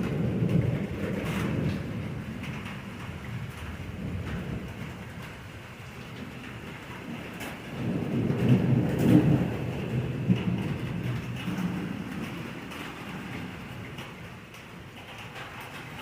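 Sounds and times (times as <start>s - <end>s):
low rumble of thunder: 0.0s - 16.0s
rain falling: 0.0s - 16.0s.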